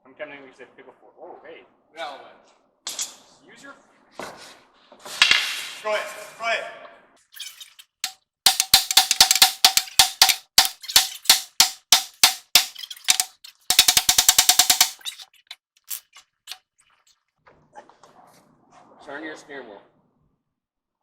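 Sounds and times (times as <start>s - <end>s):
hammer striking metal: 8.5s - 15.0s.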